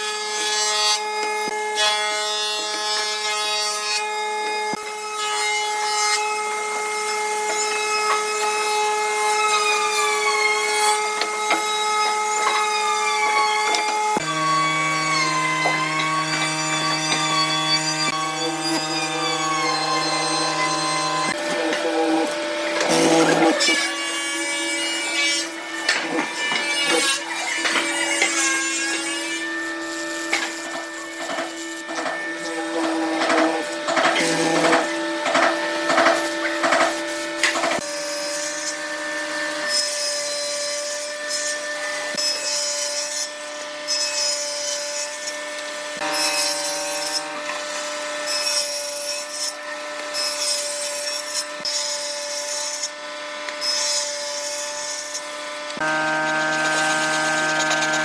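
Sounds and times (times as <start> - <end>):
power tool sawing wood: 0.0 - 58.0.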